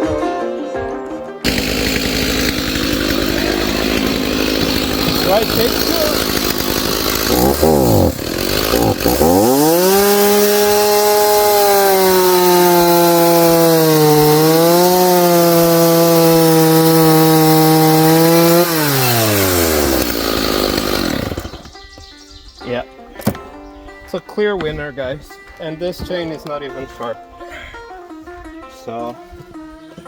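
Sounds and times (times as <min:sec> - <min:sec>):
chainsaw cutting through log: 0:01.4 - 0:21.8.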